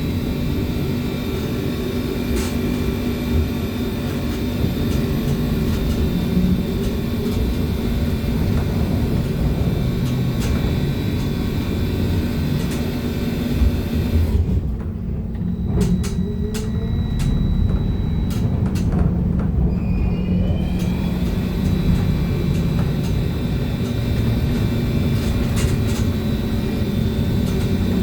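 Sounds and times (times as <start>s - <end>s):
trolleybus running rumble: 0.0s - 28.0s
faint whine tones: 15.3s - 28.0s.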